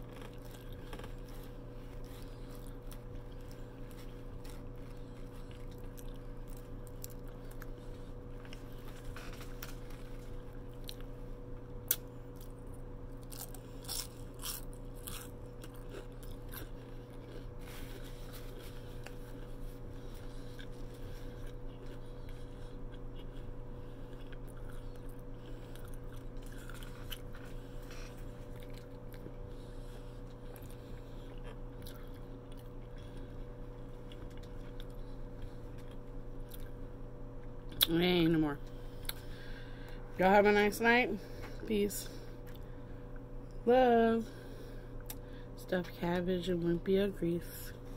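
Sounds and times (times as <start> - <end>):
person chewing crunchy food: 0.0 - 37.9, 38.6 - 40.0
steady low hum: 0.0 - 47.9.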